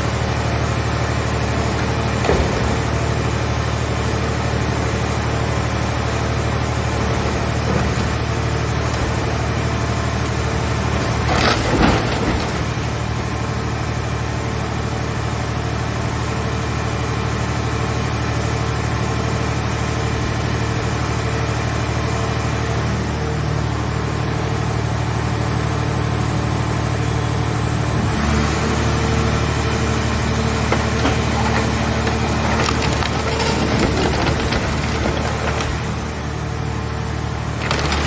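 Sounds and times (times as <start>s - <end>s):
hydraulic pump running: 29.4s - 38.0s
metal cracking and creaking: 30.5s - 36.1s.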